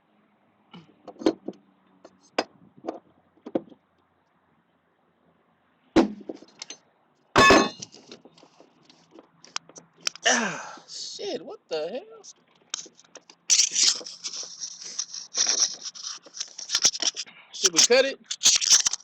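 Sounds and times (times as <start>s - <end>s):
crowbar clanking on metal: 7.4s - 7.8s.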